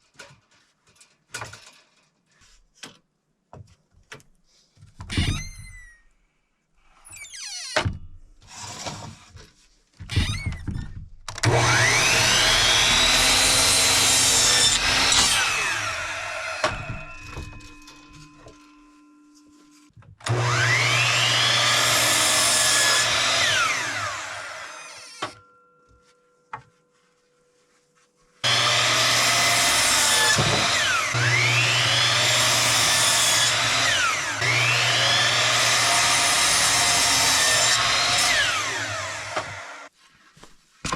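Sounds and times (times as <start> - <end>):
electric power saw cutting boards: 11.4 - 18.7, 20.2 - 25.4, 28.4 - 39.9.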